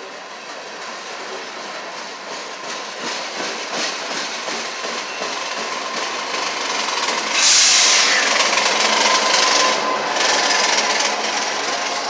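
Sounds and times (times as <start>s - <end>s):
diesel locomotive engines running: 0.0s - 12.0s
steel wheels grinding on rails: 0.4s - 12.0s
sudden loud hiss: 7.2s - 8.6s.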